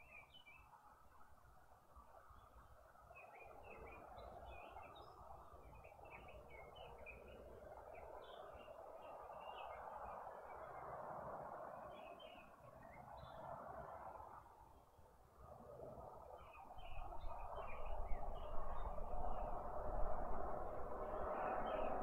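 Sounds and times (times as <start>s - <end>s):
faint bird chirping: 0.0s - 20.1s.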